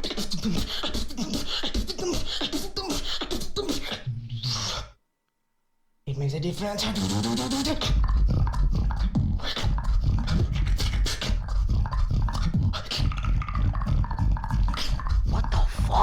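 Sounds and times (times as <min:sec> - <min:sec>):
beatboxing: 0:00.0 - 0:04.9, 0:06.6 - 0:16.0.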